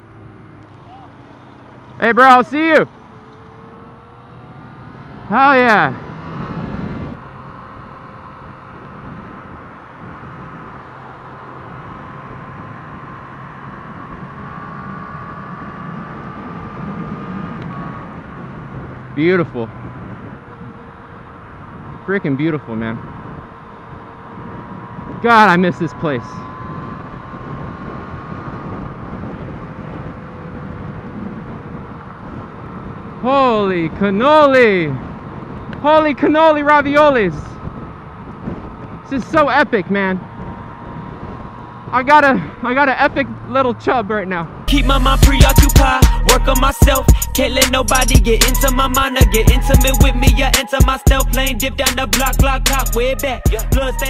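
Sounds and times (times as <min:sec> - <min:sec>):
motorcycle engine drone: 0:00.0 - 0:54.0
wind noise: 0:05.1 - 0:07.2, 0:08.4 - 0:42.6.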